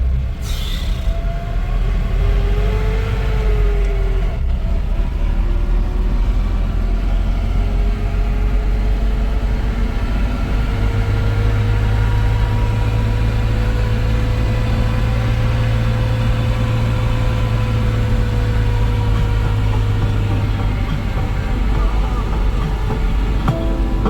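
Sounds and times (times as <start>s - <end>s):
vehicle engine running: 5.8s - 24.0s
faint engine whine: 7.1s - 24.0s.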